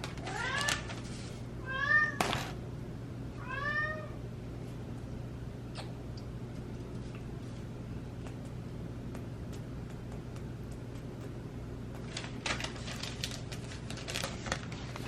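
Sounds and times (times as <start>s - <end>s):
cat meowing: 1.6s - 2.2s, 3.4s - 4.2s.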